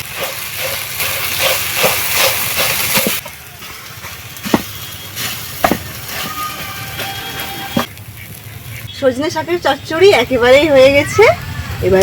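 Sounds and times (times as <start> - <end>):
vegetables sizzling in a pan: 0.0 - 10.6
sharp knocks: 5.6 - 5.9.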